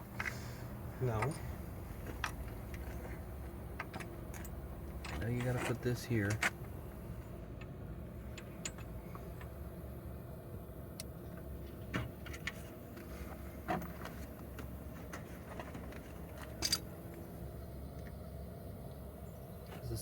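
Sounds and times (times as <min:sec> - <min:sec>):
steady low hum: 0:00.0 - 0:20.0
metal parts and tools clinking: 0:16.4 - 0:16.9.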